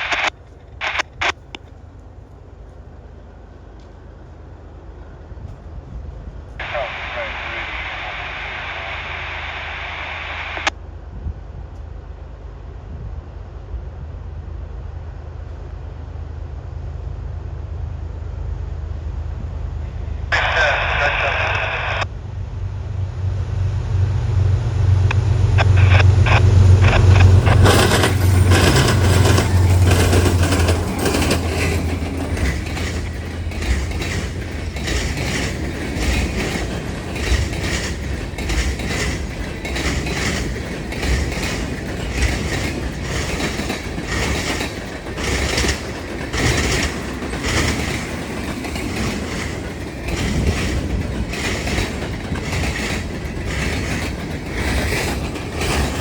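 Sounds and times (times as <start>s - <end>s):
diesel locomotive engines passing: 0.0s - 56.0s
train wheels clickety-clack: 25.0s - 56.0s.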